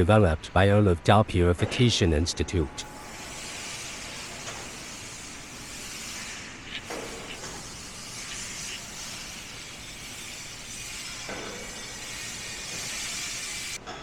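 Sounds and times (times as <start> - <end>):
airy hiss: 3.0 - 13.8.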